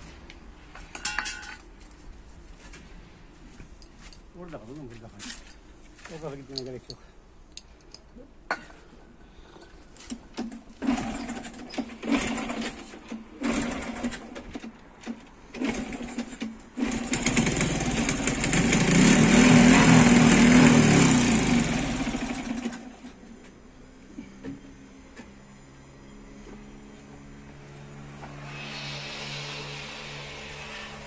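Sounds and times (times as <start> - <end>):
motorcycle engine sputtering and running: 10.4 - 23.1.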